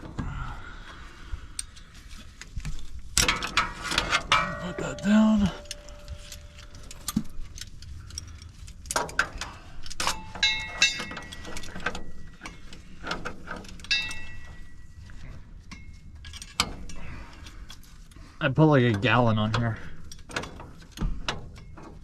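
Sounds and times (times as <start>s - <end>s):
sharp metallic clanks: 3.2s - 7.2s, 10.0s - 12.2s, 13.8s - 14.9s
metal tools clinking: 3.2s - 17.8s.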